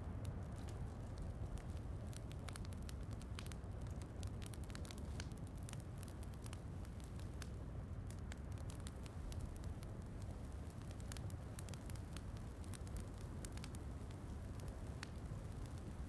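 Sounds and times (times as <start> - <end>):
fire crackling: 0.0 - 16.0
low rumble of fire: 0.0 - 16.0
sharp pops of fire: 0.2 - 16.0.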